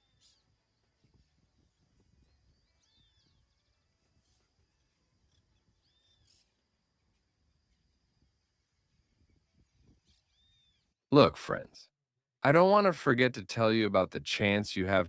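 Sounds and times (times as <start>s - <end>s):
faint bird calls: 0.0s - 6.8s.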